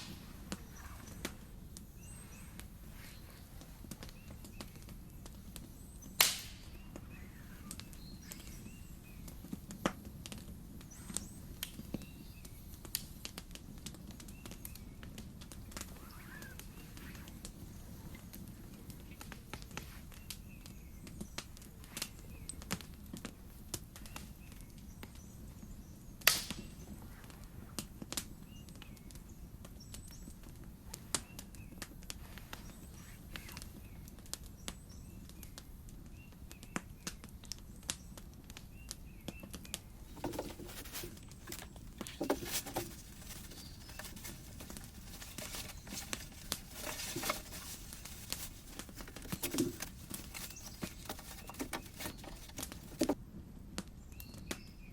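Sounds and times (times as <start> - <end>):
campfire crackling and popping: 0.0 - 2.7, 3.5 - 25.4, 26.2 - 32.8, 33.4 - 53.1
rustling: 39.8 - 53.2.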